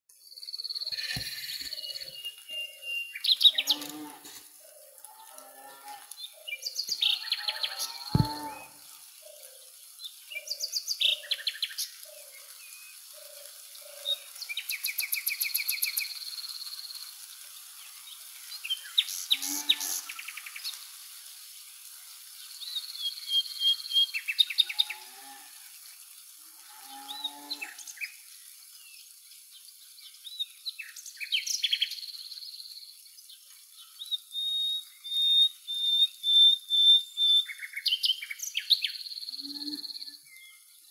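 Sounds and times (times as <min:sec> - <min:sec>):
birds chirping and whistling: 0:00.7 - 0:04.1, 0:34.4 - 0:37.6.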